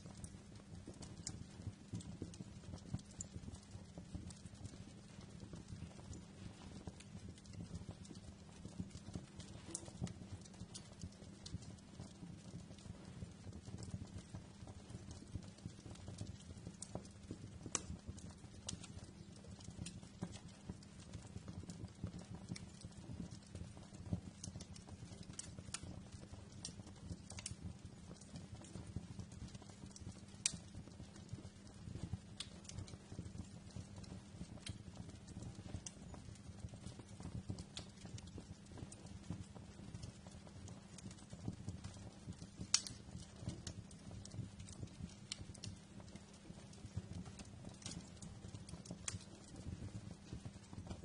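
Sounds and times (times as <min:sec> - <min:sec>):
low rumble of burning: 0:00.0 - 0:51.0
wood fire crackling: 0:00.0 - 0:51.0.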